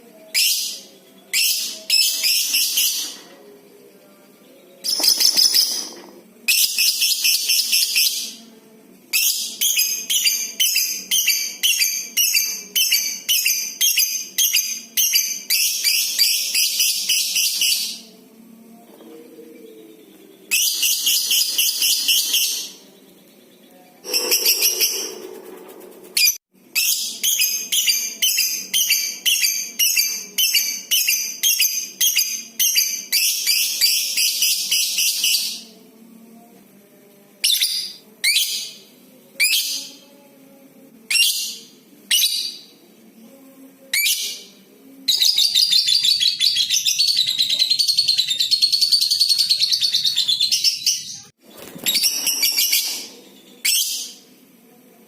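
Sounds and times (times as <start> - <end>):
lovebird calling: 24.0 - 25.4.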